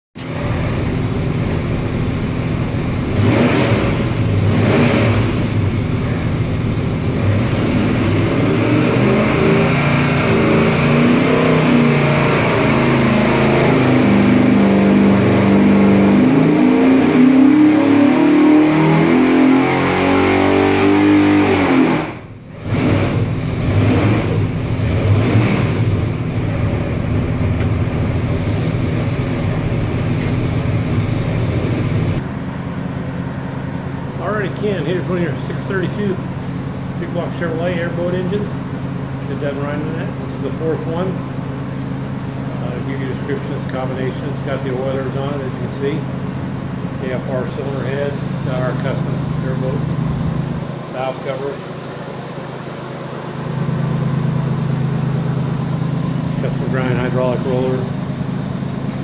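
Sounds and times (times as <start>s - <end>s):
engine idling: 0.2s - 16.6s, 22.2s - 59.0s
engine throttle blips: 0.2s - 59.0s
engine revving up in pitch: 3.1s - 6.2s, 7.1s - 27.2s, 47.0s - 58.1s.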